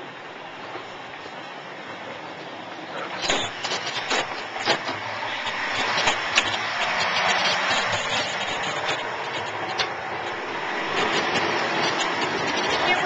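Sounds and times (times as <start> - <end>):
rushing noise inside train: 0.0 - 13.0
sharp clicks and knocks: 3.2 - 13.0.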